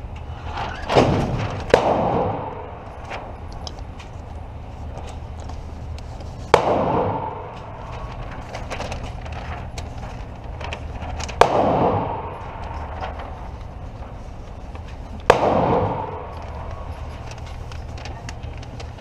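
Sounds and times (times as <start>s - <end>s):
close gunshots with echo: 0.5s - 3.0s, 6.5s - 7.8s, 11.4s - 13.0s, 15.3s - 17.0s
faint distant gunshots: 0.9s - 2.9s, 6.5s - 7.8s, 11.4s - 13.0s, 15.2s - 16.9s.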